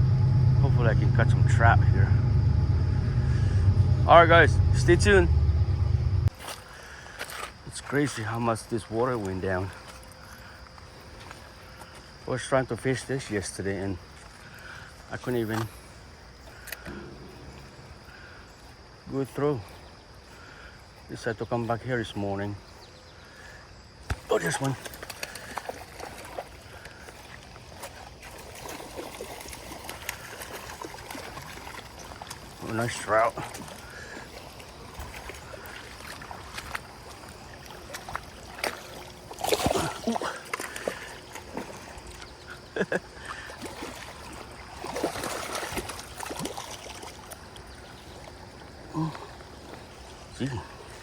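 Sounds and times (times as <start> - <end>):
creek water running over shallows: 0.0 - 51.0
small water splashes: 24.0 - 51.0.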